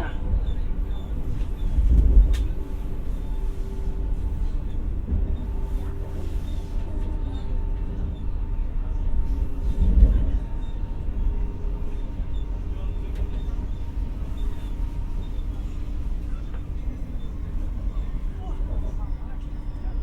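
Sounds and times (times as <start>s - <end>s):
train interior rumble: 0.0s - 20.0s.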